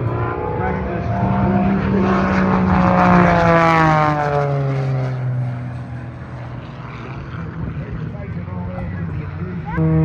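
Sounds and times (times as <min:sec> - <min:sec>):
propeller aircraft flying past: 0:00.0 - 0:10.0.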